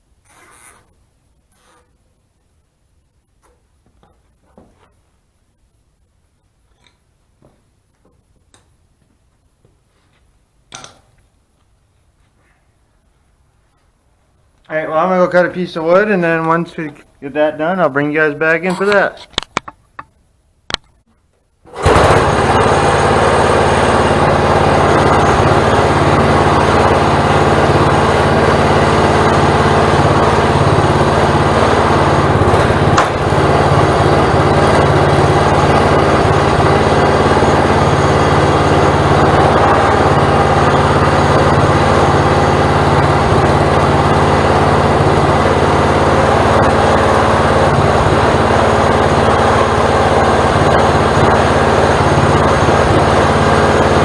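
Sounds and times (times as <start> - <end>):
small petrol engine running: 21.7 - 54.0.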